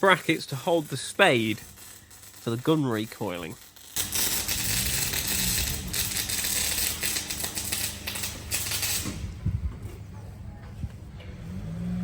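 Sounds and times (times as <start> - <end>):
welding arc crackling: 0.0 - 9.4.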